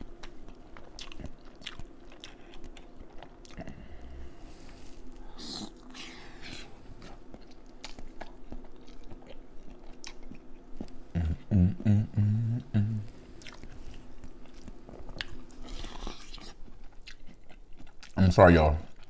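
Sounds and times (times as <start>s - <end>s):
person chewing: 0.0s - 18.2s
short low hums: 10.8s - 15.1s.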